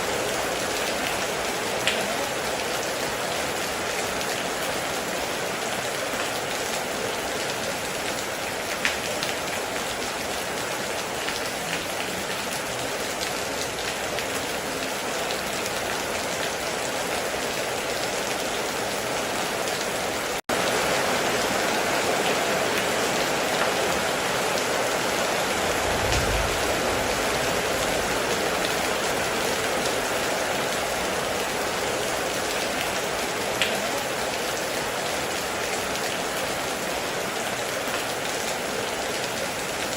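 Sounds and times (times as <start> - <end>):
heavy rain on a metal roof: 0.0 - 39.9
distant thunder rumble: 25.4 - 29.4.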